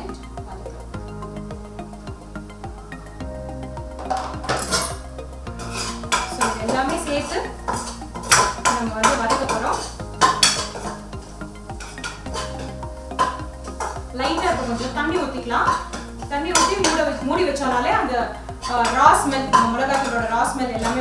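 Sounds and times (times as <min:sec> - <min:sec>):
metal spoon scraping pan: 0:05.6 - 0:21.0.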